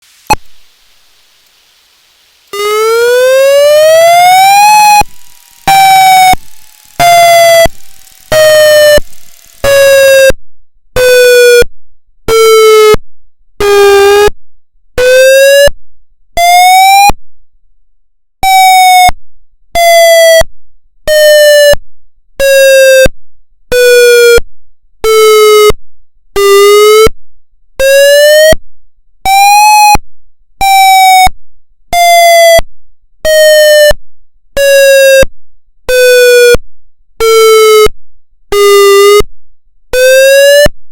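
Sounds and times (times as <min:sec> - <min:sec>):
siren pulsing wail: 0:02.5 - 0:10.4, 0:11.0 - 0:11.7, 0:16.4 - 0:17.1, 0:29.3 - 0:30.0, 0:33.3 - 0:33.9, 0:38.6 - 0:39.2, 0:40.0 - 0:40.7.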